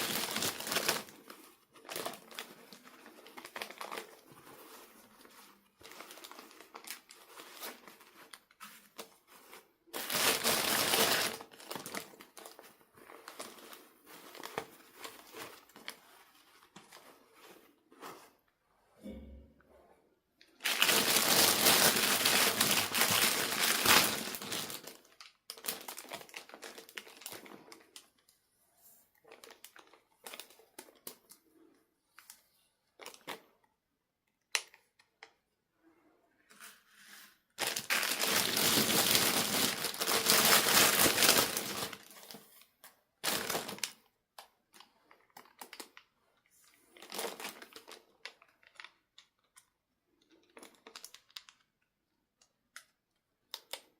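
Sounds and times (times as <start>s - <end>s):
packaging crinkled and torn: 0.0s - 17.2s, 20.6s - 28.3s, 29.3s - 31.4s, 33.0s - 33.5s, 37.6s - 46.1s, 46.9s - 53.9s.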